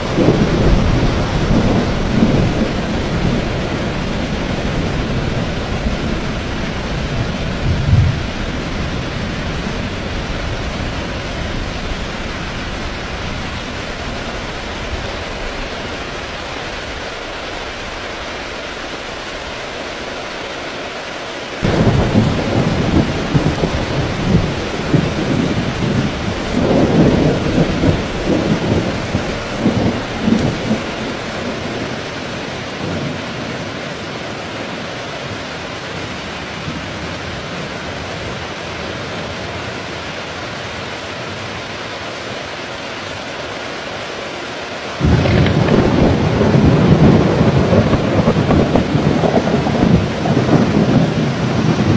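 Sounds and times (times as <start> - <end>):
thunderclap rumbling: 0.0 - 15.6, 21.6 - 33.8, 45.0 - 51.9
steady rain falling: 0.0 - 51.9.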